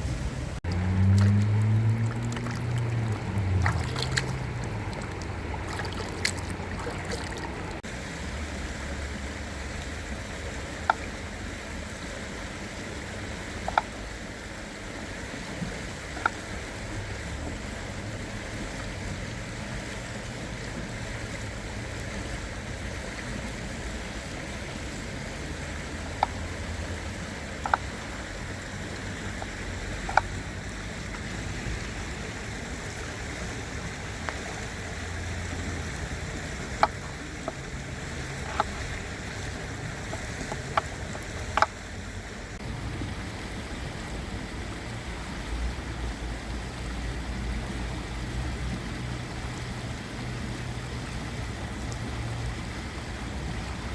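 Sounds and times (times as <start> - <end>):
low rumble: 0.0 - 8.4
stream water running: 0.0 - 53.9.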